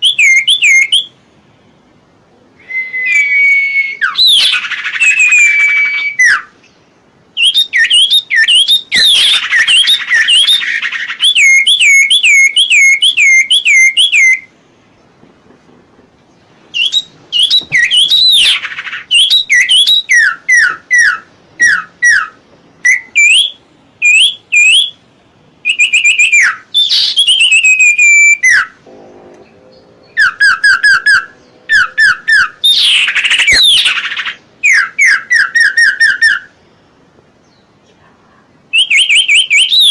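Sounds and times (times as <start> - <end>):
bird singing whistled notes: 0.0 - 1.2, 2.6 - 14.5, 16.7 - 25.0, 25.6 - 28.8, 29.7 - 36.6, 38.7 - 39.9.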